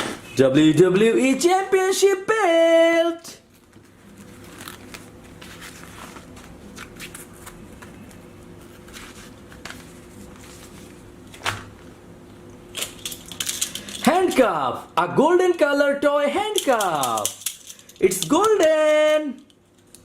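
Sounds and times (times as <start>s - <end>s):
faint steady hum: 0.0s - 20.0s
plastic toys rustling and clicking: 12.8s - 14.2s, 16.5s - 20.0s.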